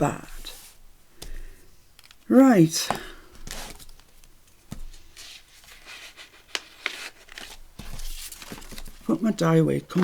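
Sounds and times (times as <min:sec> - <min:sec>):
soft paper rustling: 0:02.9 - 0:10.0.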